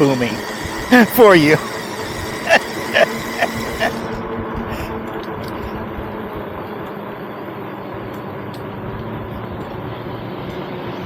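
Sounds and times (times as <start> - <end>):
vehicle hum: 0.0 - 11.0
wind rushing over microphone: 3.6 - 6.8.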